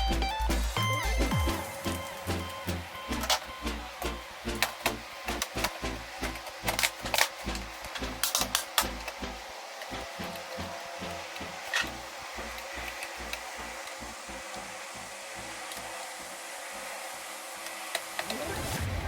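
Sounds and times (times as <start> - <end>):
laptop parts clicking: 3.1 - 14.7.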